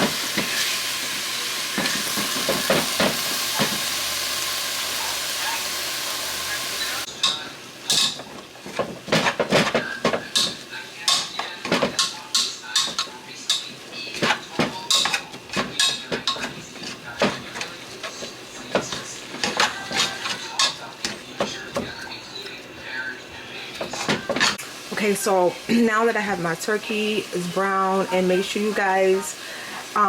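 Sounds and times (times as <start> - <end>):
utensil scraping and knocking pan: 7.2 - 22.4, 23.8 - 24.6.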